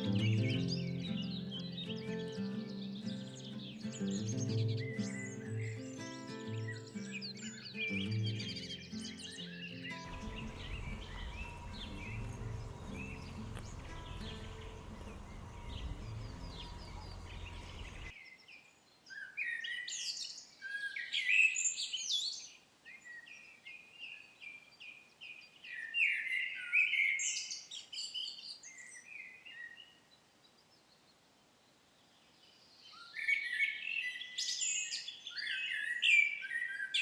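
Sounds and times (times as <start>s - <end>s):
wild birds singing: 0.0s - 31.2s, 32.0s - 37.0s
low background hum: 10.1s - 18.1s.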